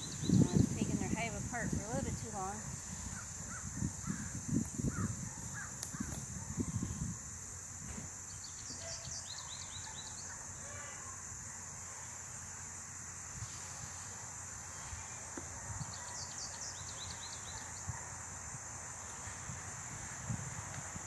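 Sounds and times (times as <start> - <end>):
small bird chirping: 0.0 - 0.7, 8.3 - 10.4
high-pitched insect drone: 0.0 - 21.0.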